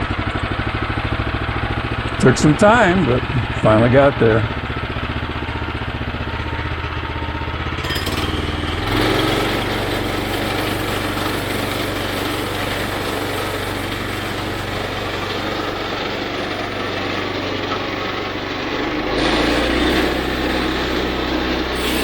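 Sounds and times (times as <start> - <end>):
gas engine running: 0.0 - 22.0
band saw cutting log: 7.8 - 22.0.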